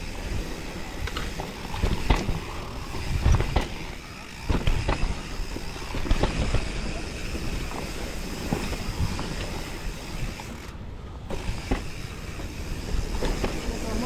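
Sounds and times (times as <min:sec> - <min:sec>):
bike tyres rumbling on trail: 0:00.0 - 0:14.0
wind buffeting microphone: 0:00.0 - 0:14.0
bike knocks and rattles: 0:00.1 - 0:14.0.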